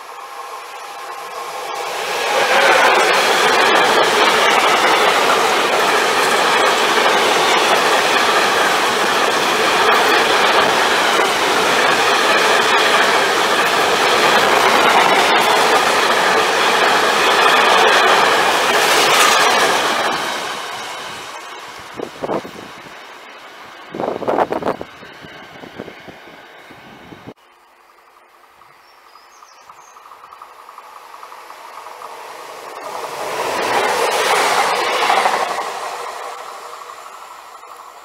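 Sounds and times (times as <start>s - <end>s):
freight train wheels rushing on rail: 0.0s - 38.0s
wheels clicking over track: 1.9s - 20.8s.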